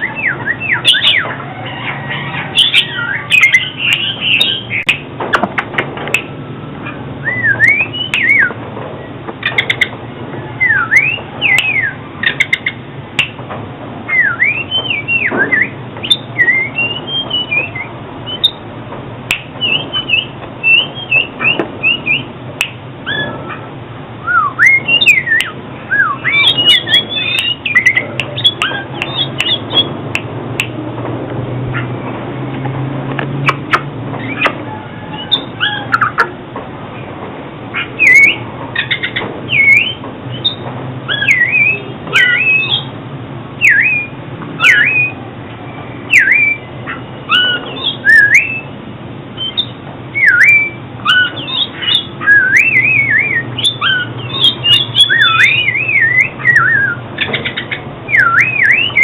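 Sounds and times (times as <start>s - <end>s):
bird singing whistled phrases: 0.0s - 5.0s, 7.2s - 8.6s, 10.6s - 13.3s, 14.1s - 18.6s, 19.3s - 22.3s, 24.2s - 29.9s, 37.8s - 42.9s, 43.6s - 48.8s, 49.4s - 59.0s
harsh bird notes and clicks: 0.0s - 23.7s, 24.4s - 36.4s, 37.7s - 43.0s, 43.6s - 48.8s, 49.4s - 59.0s.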